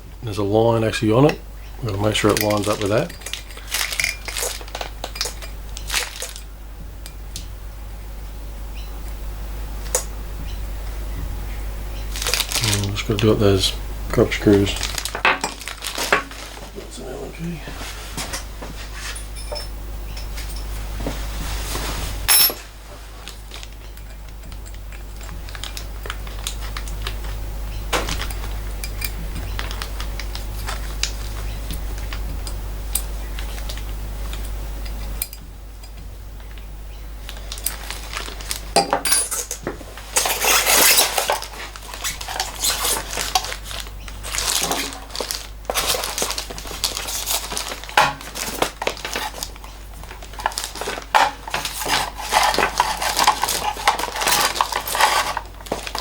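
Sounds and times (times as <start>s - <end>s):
low steady hum: 0.0s - 56.0s
metal tools clinking: 2.1s - 6.5s, 19.0s - 20.8s, 22.3s - 22.7s, 38.8s - 39.6s, 40.2s - 43.6s, 51.2s - 56.0s.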